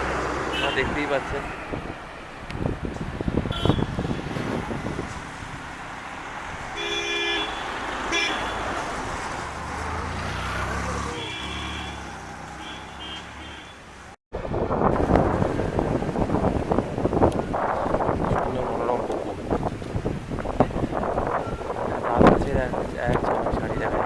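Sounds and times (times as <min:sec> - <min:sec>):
motorbike road noise: 0:00.0 - 0:24.0
vehicle horns honking: 0:00.5 - 0:01.0, 0:03.4 - 0:04.3, 0:06.7 - 0:08.8, 0:11.0 - 0:14.0
passing vehicle engine drone: 0:07.6 - 0:13.0.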